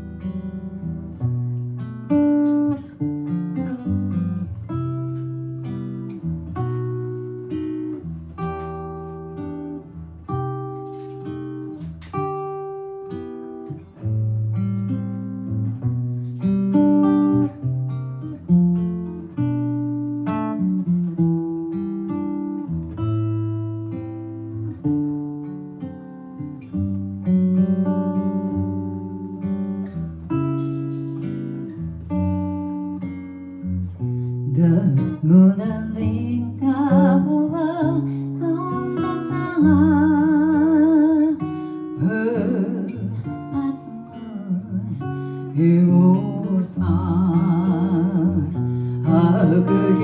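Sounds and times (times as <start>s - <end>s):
solo jazz guitar: 0.0s - 50.0s.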